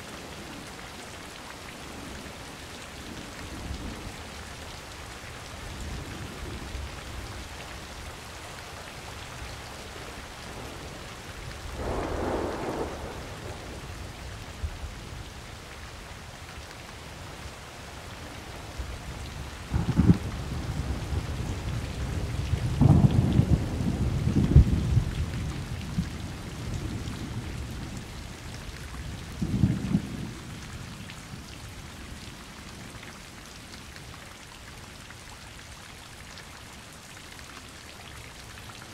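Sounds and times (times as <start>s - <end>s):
rain falling: 0.0s - 38.9s
thunder rolling: 11.8s - 13.8s, 22.6s - 25.1s.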